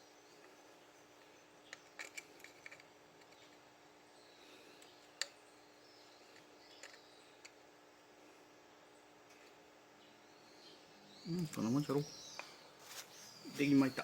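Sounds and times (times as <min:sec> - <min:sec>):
faint clicks and taps of tools: 0:06.3 - 0:07.6.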